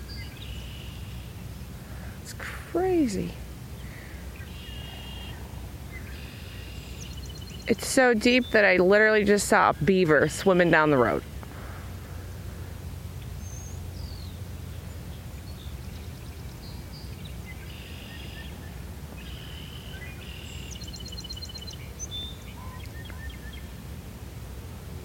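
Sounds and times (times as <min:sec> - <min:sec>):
steady low rumble: 0:00.0 - 0:25.0
birds chirping and calling: 0:03.1 - 0:09.0, 0:13.2 - 0:23.8
bird trill: 0:06.0 - 0:07.8, 0:15.4 - 0:23.7.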